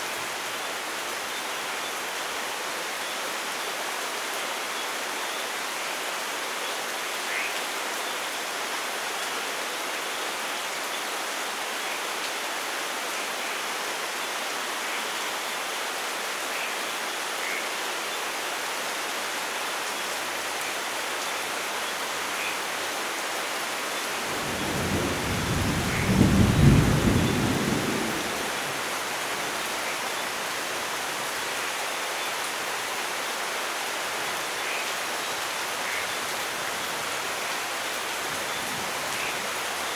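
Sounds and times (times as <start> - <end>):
heavy rain hiss: 18.5 - 39.9
thunder rumbling: 24.2 - 28.8.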